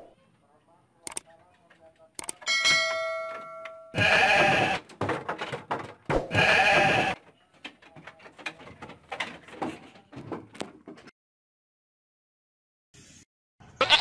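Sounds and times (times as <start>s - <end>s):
livestock bleating: 4.0s - 4.8s, 6.3s - 7.2s, 13.8s - 14.0s.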